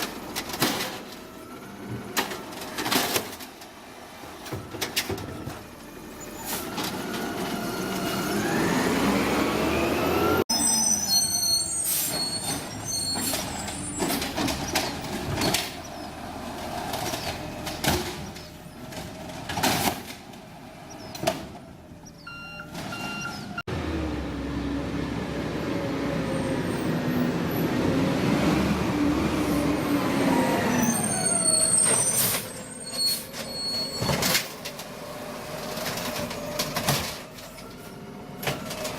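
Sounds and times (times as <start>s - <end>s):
garbage truck diesel engine revving: 5.6s - 11.0s, 23.4s - 32.6s.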